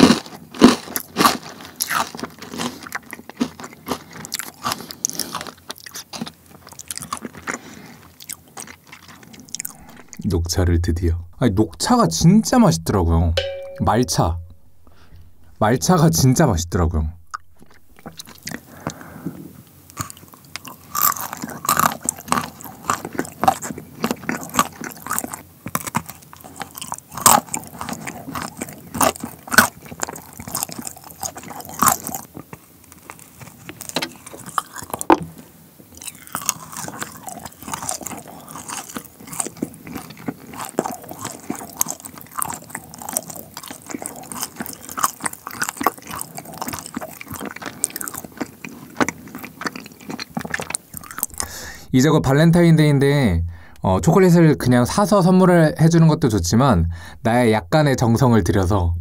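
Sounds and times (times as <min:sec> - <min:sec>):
chocolate crunching: 0:00.0 - 0:10.2, 0:19.9 - 0:35.1, 0:35.9 - 0:51.9.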